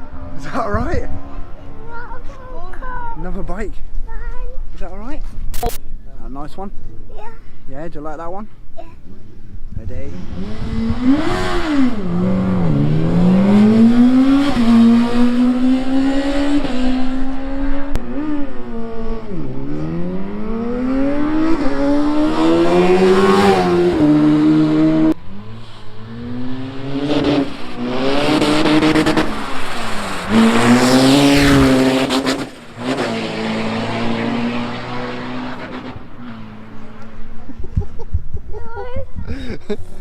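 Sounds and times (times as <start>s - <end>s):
racing engine accelerating: 10.1s - 37.5s.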